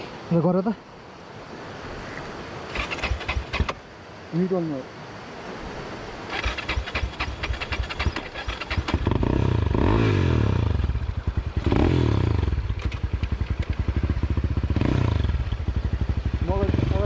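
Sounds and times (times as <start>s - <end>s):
dirt bike engine revving: 2.7s - 3.8s, 6.3s - 17.0s.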